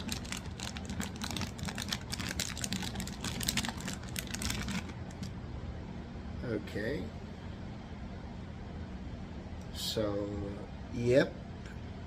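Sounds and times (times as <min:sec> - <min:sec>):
plastic clicks and crinkles: 0:00.0 - 0:05.3
steady low hum: 0:00.0 - 0:12.0.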